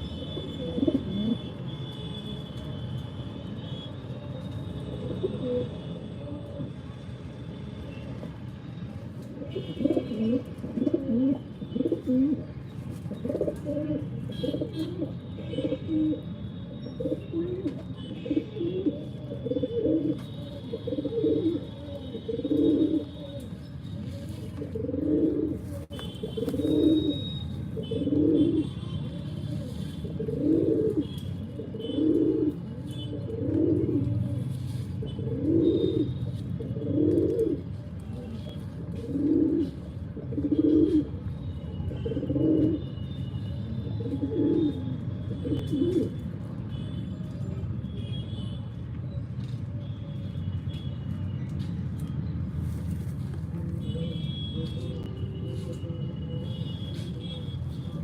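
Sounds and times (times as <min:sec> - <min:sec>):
pigeons cooing: 0:09.4 - 0:12.5, 0:13.1 - 0:16.2, 0:17.0 - 0:41.2, 0:41.8 - 0:42.9, 0:43.8 - 0:46.2.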